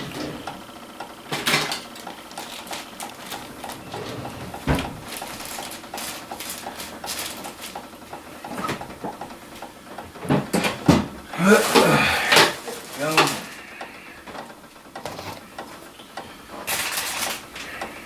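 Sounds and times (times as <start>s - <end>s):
dishes and utensils clattering: 10.2s - 13.6s.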